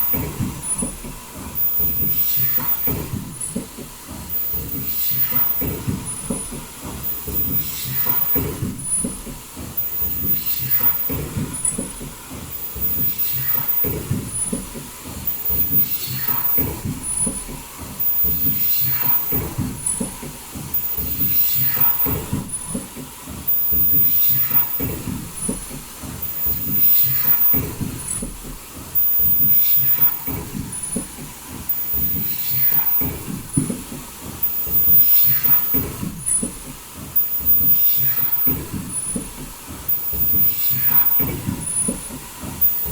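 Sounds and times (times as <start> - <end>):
machine clatter: 0.0 - 42.9.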